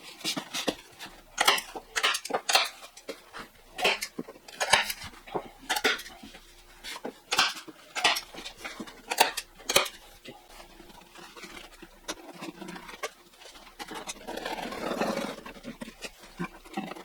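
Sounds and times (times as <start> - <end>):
rubber being cut with rasping strokes: 0.3 - 2.7, 3.4 - 17.0.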